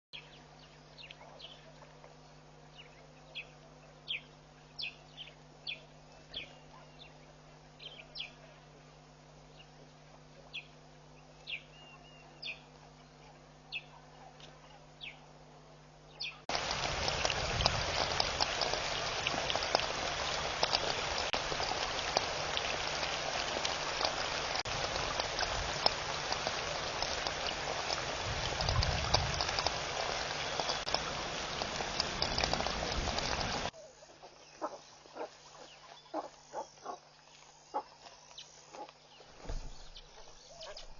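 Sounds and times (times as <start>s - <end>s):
faint electrical hum: 0.2s - 40.9s
dense crackling hiss: 16.2s - 40.9s.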